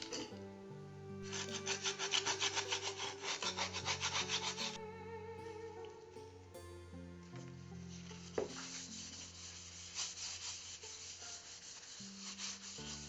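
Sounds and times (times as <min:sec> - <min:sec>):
soft background music: 0:00.0 - 0:13.0
hand tool rubbing on wood: 0:01.2 - 0:04.8, 0:07.7 - 0:13.0.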